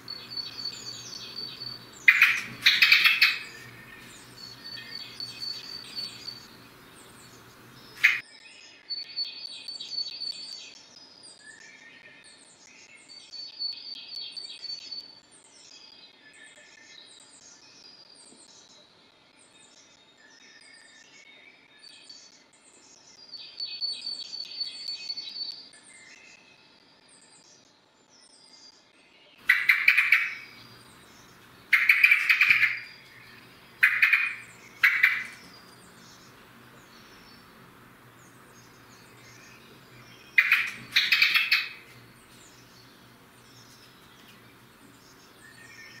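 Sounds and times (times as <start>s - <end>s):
rattling bird trill: 0.0s - 6.7s, 7.3s - 8.2s, 29.4s - 37.5s, 38.9s - 45.2s
loud bird calls close by: 0.0s - 8.2s, 29.4s - 46.0s
small birds chirping: 0.0s - 10.3s, 29.4s - 46.0s.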